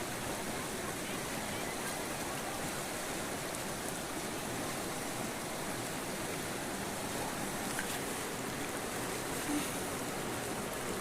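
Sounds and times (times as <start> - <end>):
river water flowing over stones: 0.0 - 11.0.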